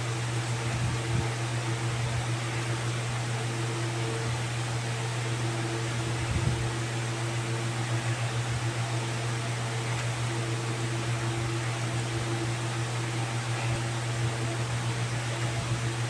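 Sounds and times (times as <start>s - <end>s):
steady mechanical hum with hiss: 0.0s - 16.0s.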